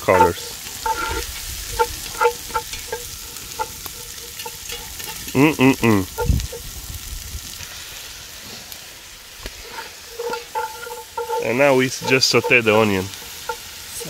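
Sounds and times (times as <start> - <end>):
sticks tapping a pot: 0.0 - 6.6, 9.4 - 14.0
onion sizzling in fat: 0.0 - 14.0
burst of person's voice: 5.4 - 6.2.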